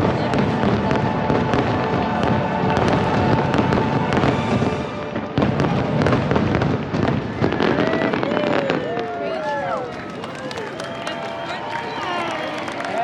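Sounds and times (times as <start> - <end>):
music soundtrack: 0.0 - 7.0
fireworks crackling bursts: 0.0 - 13.0.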